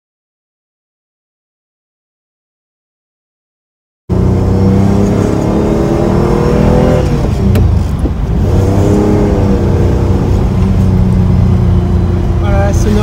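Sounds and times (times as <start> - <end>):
car engine pulling: 4.1 - 13.0.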